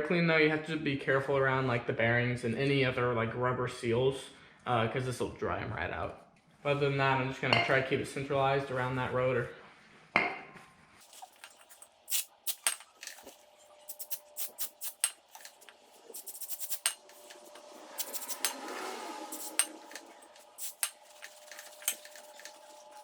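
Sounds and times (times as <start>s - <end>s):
metallic clicks and clinks: 11.1s - 13.3s, 13.9s - 18.6s, 19.3s - 23.0s
aerosol spray hissing: 12.1s - 12.8s, 13.9s - 18.6s, 19.3s - 20.9s.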